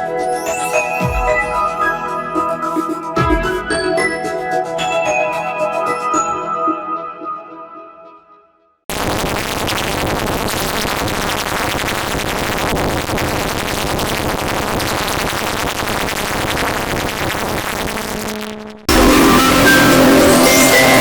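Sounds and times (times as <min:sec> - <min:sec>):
processed music with held tones: 0:00.0 - 0:21.0
harsh distorted synth wash: 0:08.9 - 0:21.0.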